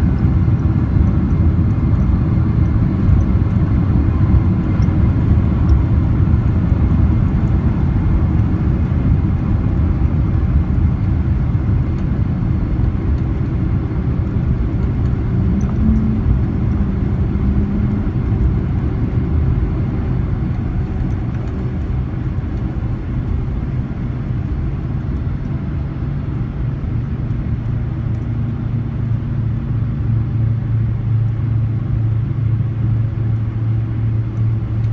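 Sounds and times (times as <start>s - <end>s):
jet engines rumbling: 0.0s - 27.2s
low steady hum: 0.0s - 34.9s.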